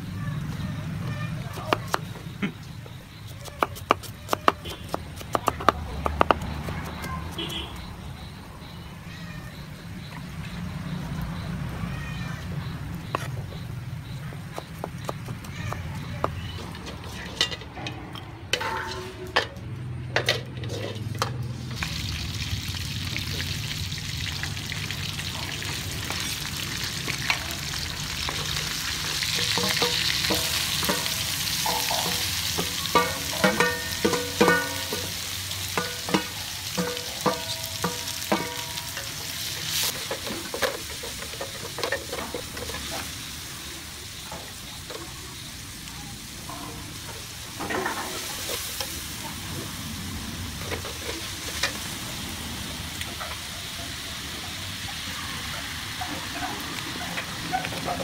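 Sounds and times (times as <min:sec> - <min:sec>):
food sizzling in a wok: 0:20.7 - 0:58.0.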